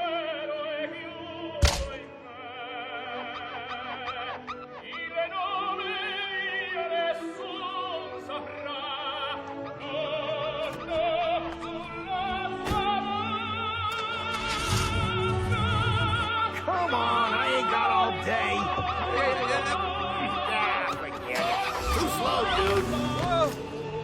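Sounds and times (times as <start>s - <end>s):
operatic singing: 0.0s - 24.0s
sharp thump: 1.6s - 2.0s.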